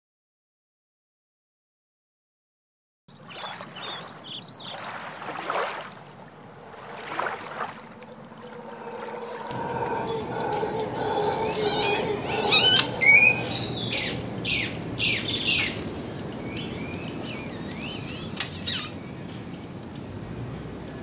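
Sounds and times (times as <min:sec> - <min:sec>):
birds chirping and squawking: 0:08.0 - 0:19.0.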